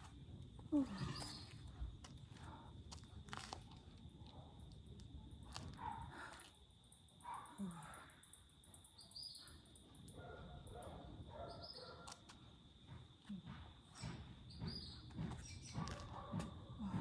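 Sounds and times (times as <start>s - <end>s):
insect drone: 0.0s - 15.3s
bird chirping: 8.8s - 9.6s
footsteps: 12.9s - 17.0s.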